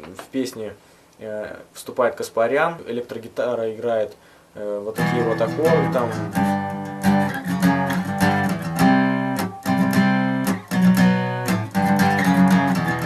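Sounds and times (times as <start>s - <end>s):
guitar strumming chords: 5.0s - 13.0s.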